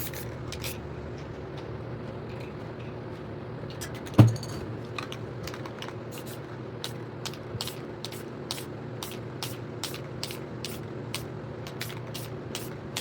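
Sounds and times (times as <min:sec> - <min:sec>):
spray paint can hissing: 0:06.1 - 0:13.0.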